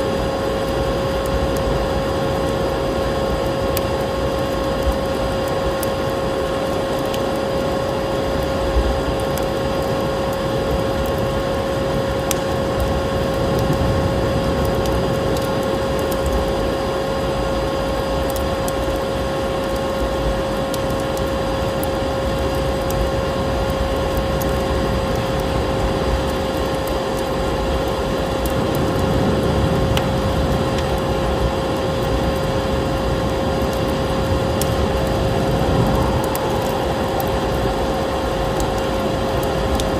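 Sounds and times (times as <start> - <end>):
rushing wind-like noise: 0.0 - 39.9
wood fire crackling: 0.0 - 39.9
vacuum cleaner drone: 27.1 - 39.9.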